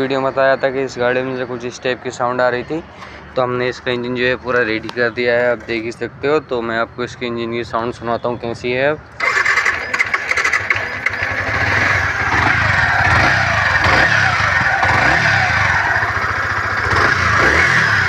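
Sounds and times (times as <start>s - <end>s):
motorcycle engine revving: 9.2s - 18.0s.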